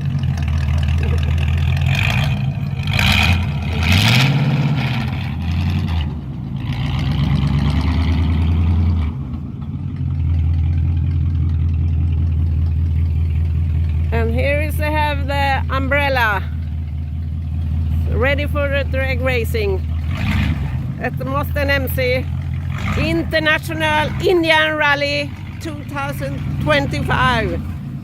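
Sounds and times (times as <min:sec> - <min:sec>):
vehicle engine revving: 0:00.0 - 0:28.0.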